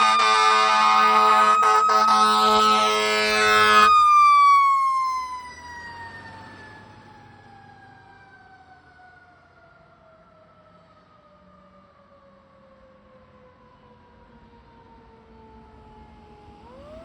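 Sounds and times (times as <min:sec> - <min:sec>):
fire truck horn blast: 0:00.0 - 0:04.0.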